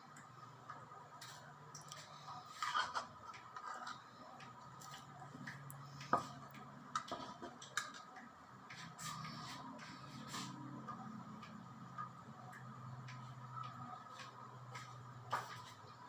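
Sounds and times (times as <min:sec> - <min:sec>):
faint steady hum: 0:00.0 - 0:16.0
food preparation taps and clicks: 0:04.3 - 0:08.9.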